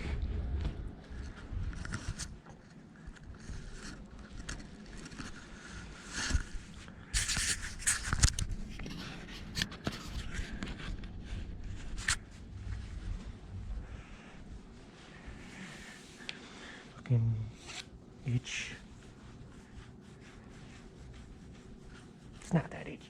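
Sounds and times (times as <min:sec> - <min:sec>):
scraping and rustling: 0:00.0 - 0:16.2.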